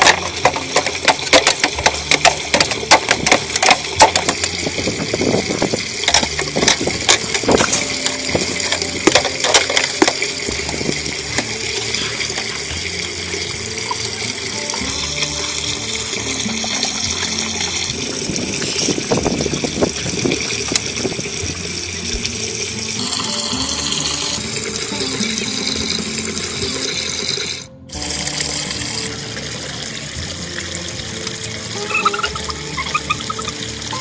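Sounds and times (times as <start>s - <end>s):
background music: 0.0s - 34.0s
running water: 0.0s - 34.0s.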